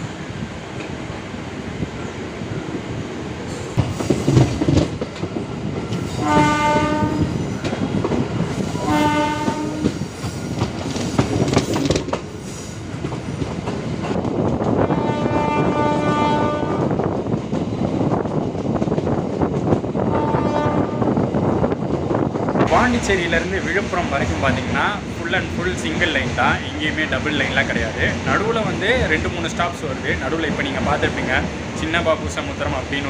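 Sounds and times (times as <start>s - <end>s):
train wheels clattering on rails: 3.4s - 20.4s
train horn blasts: 6.2s - 7.4s, 8.8s - 10.0s, 14.8s - 17.0s, 20.1s - 21.2s.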